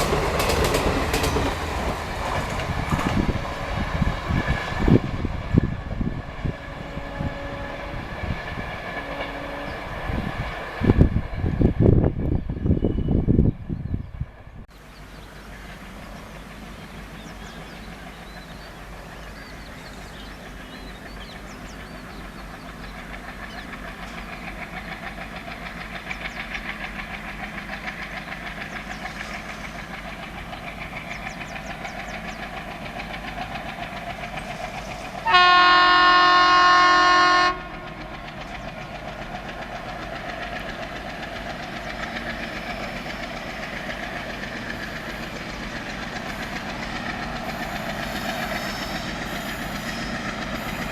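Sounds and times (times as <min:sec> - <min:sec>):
train rumble: 0:00.0 - 0:50.9
locomotive horn blast: 0:06.6 - 0:08.3, 0:09.0 - 0:09.9, 0:35.2 - 0:38.0.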